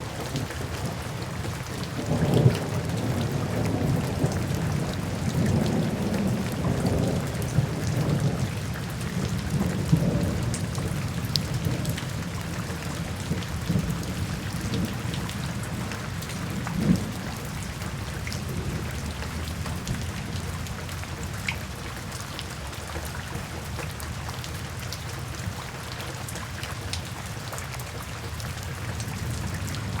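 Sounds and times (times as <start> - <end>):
thunder rumbling: 0.0 - 20.7
rain falling: 0.0 - 30.0.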